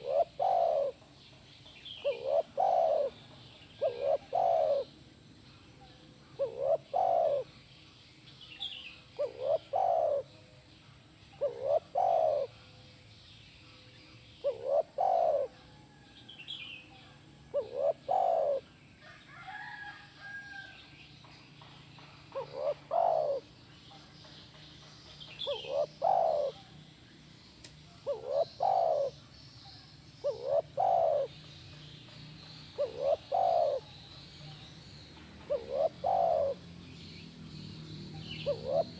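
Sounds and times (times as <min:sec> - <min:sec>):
dove cooing: 0:00.0 - 0:01.1, 0:02.0 - 0:07.6, 0:09.0 - 0:10.4, 0:11.4 - 0:12.6, 0:14.4 - 0:16.0, 0:17.0 - 0:20.7, 0:22.3 - 0:24.1, 0:25.3 - 0:26.8, 0:28.0 - 0:29.3, 0:30.2 - 0:31.4, 0:32.6 - 0:34.5, 0:35.4 - 0:36.7, 0:38.1 - 0:38.9
small birds chirping: 0:00.0 - 0:38.9.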